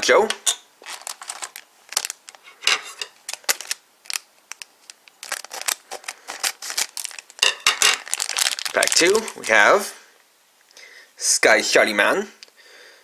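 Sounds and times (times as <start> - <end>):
foil pack crinkling: 0.8 - 9.7
scissors snipping foil: 3.0 - 8.4.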